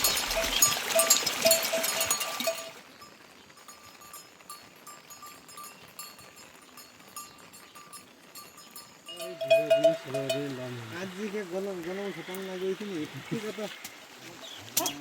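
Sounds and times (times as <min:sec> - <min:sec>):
small bell clinking: 0:00.0 - 0:10.6.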